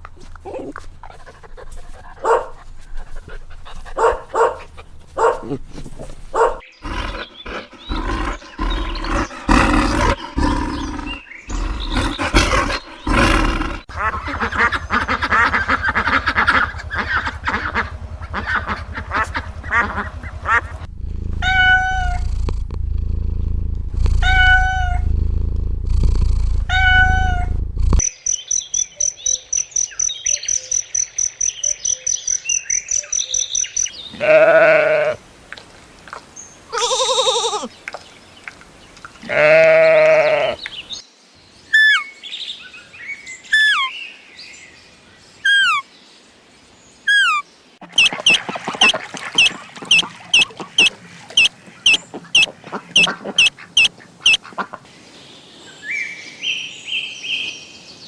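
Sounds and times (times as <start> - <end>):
rapid repeated bird calls: 1.2 - 20.8, 28.0 - 34.4, 47.0 - 58.0
cat meows: 21.4 - 22.3, 24.2 - 25.0, 26.7 - 27.5
high bird chirps: 26.7 - 34.1, 48.0 - 54.4
goat bleats: 34.1 - 35.2, 36.7 - 37.7, 39.2 - 40.6.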